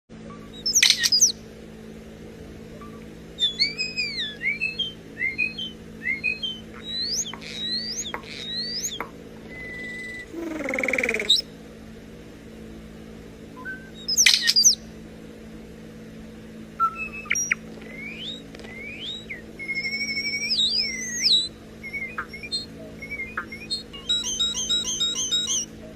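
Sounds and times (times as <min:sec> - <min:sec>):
faint steady hum: 0:00.1 - 0:25.9
starling whistling and mimicking: 0:00.5 - 0:01.4, 0:02.8 - 0:11.5, 0:13.6 - 0:14.9, 0:16.8 - 0:25.7.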